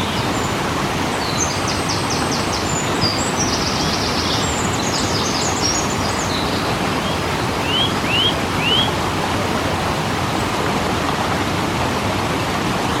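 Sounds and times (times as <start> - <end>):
birds chirping: 0.0 - 10.5
waterfall roaring: 0.0 - 13.0
short rising bird calls: 4.9 - 9.0.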